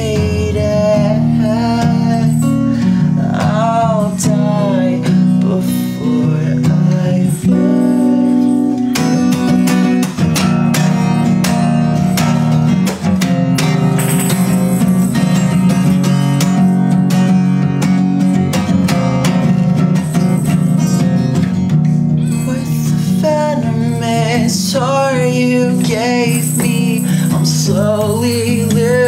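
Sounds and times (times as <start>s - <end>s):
person singing: 0.0s - 9.4s, 22.0s - 29.0s
acoustic guitar strumming and picking: 0.0s - 29.0s.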